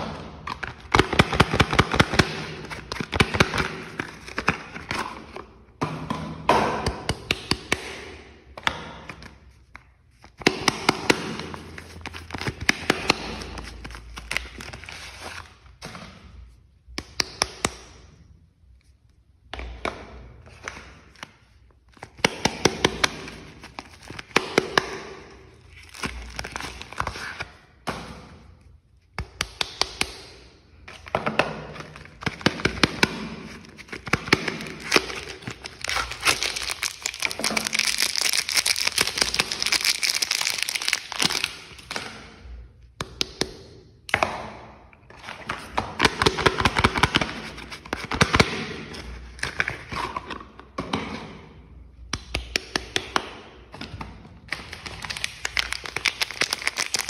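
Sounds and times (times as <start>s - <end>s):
wrappers crinkling and tearing: 33.7s - 42.0s, 54.5s - 57.0s.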